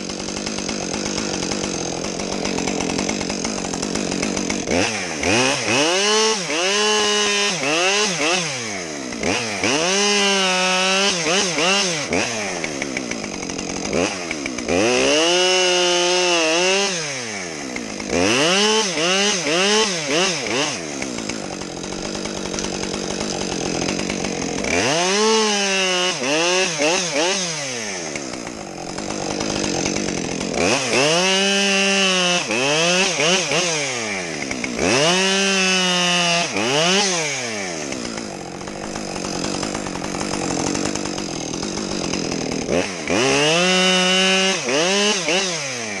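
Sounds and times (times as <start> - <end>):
chainsaw cutting logs: 0.0 - 46.0.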